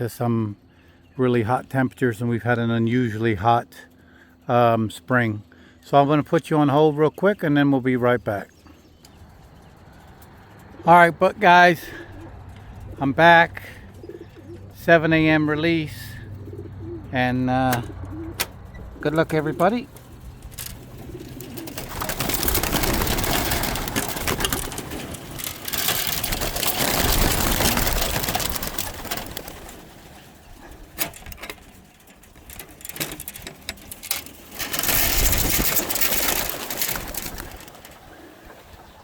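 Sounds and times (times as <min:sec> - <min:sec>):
pigeons cooing: 0:08.4 - 0:31.8, 0:34.5 - 0:39.0
wings clattering: 0:08.4 - 0:39.0.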